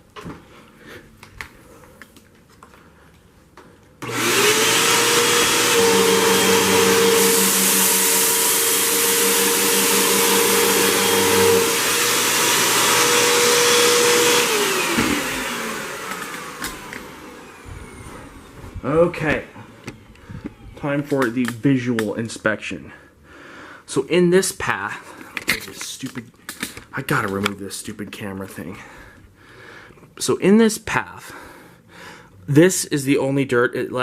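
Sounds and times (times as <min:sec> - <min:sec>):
vacuum cleaner motor whining: 0:04.0 - 0:21.2.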